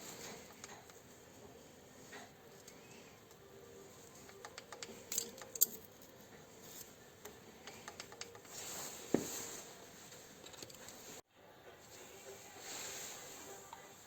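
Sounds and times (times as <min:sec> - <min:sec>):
metal parts and tools clinking: 0:04.0 - 0:08.8.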